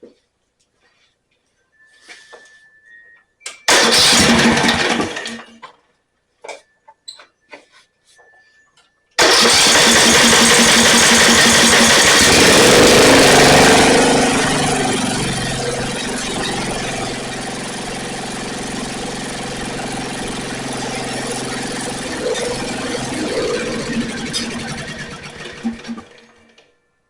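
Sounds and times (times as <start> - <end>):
mower engine starting and running: 3.7 - 5.6, 9.2 - 26.6.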